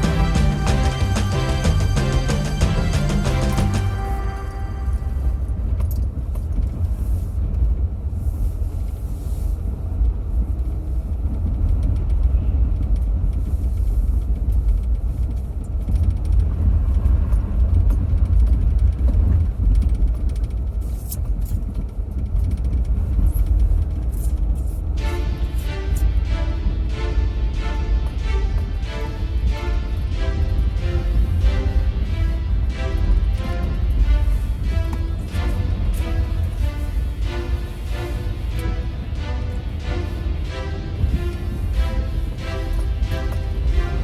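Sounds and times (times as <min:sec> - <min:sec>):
music: 0:00.0 - 0:06.0, 0:25.0 - 0:44.0
car road and engine rumble: 0:00.0 - 0:44.0.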